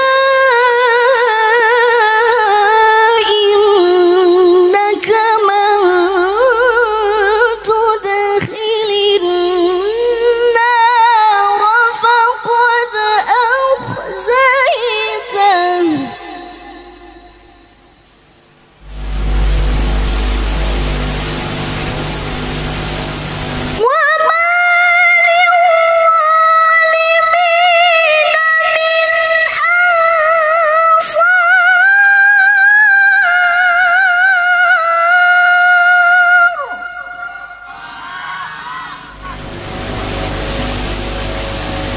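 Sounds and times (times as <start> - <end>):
woman reciting melodically: 0.0 - 17.8, 23.8 - 37.7.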